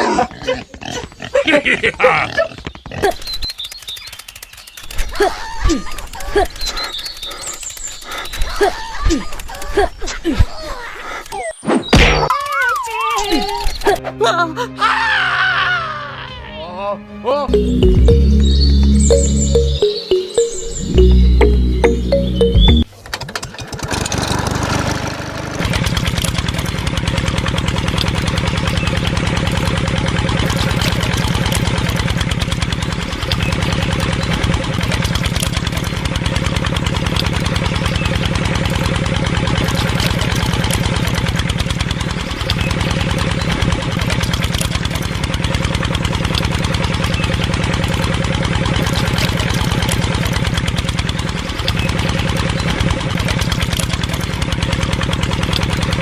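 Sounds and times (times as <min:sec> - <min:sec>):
small engine running fast: 0:03.2 - 0:08.7, 0:23.3 - 0:56.0.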